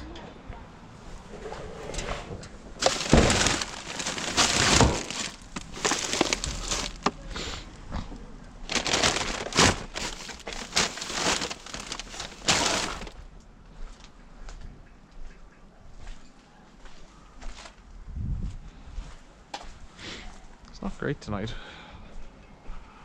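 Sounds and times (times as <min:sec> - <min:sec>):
rustling and crinkling of bags: 0:02.7 - 0:13.2.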